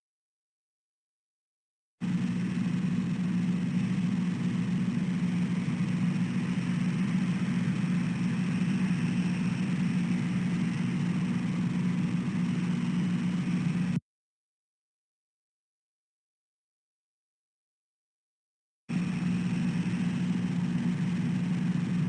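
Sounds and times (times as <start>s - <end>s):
low mechanical hum: 2.0s - 14.0s, 18.9s - 22.0s.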